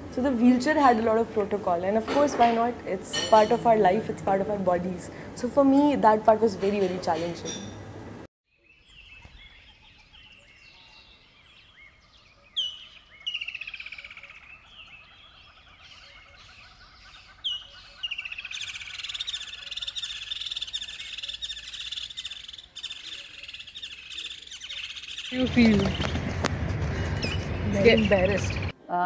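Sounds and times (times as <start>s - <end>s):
small birds chirping: 8.5s - 28.7s
rapid twittering chorus: 9.2s - 28.7s
sharp downward-sweeping bird calls: 11.7s - 26.2s.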